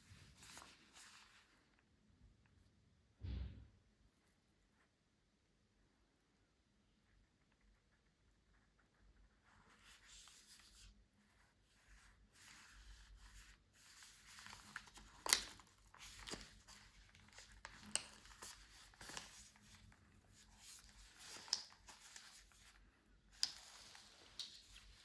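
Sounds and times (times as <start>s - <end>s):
packaging clicks and snaps: 14.7s - 19.6s.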